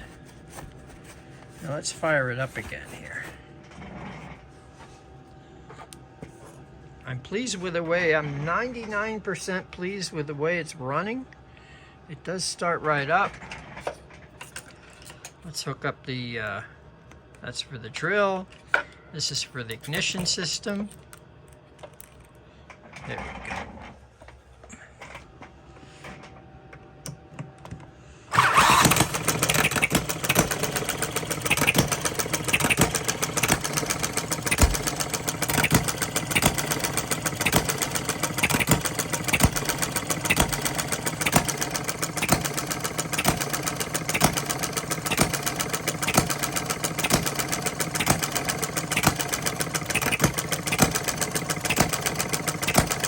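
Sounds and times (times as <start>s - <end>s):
gas engine running: 0.0s - 3.5s, 28.3s - 53.0s.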